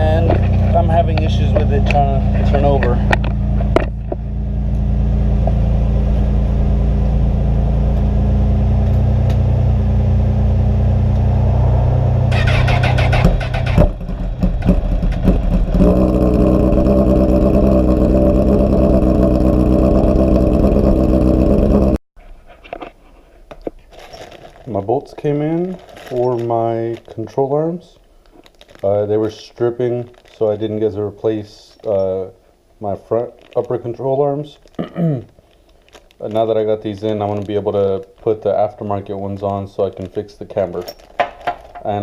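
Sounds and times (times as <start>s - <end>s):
engine idling: 0.0s - 11.2s, 12.3s - 22.0s.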